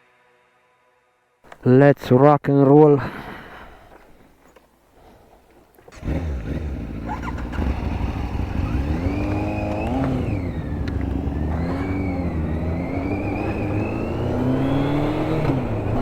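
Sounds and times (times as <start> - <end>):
motorcycle engine accelerating: 5.9 - 16.0.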